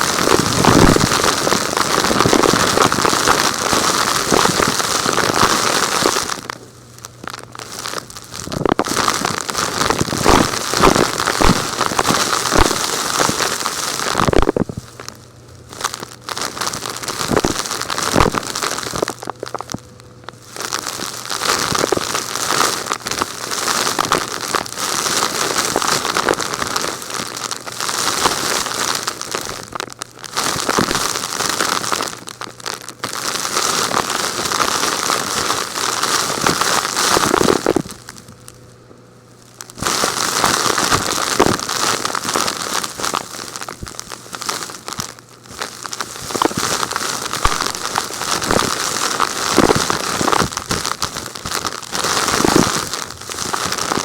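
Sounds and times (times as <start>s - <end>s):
vacuum sucking up gritty debris: 0.0s - 38.3s, 39.6s - 54.0s
faint motor hum: 0.0s - 54.0s.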